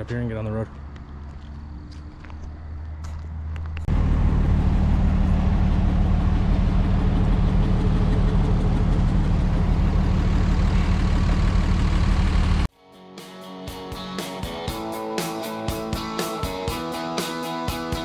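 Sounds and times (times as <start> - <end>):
road noise: 0.0 - 12.7
truck engine running: 0.7 - 12.7.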